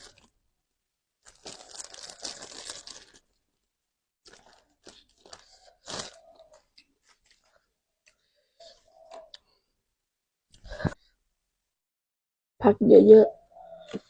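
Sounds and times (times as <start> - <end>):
crunchy chewing of raw vegetables: 1.3 - 3.2, 4.3 - 7.5.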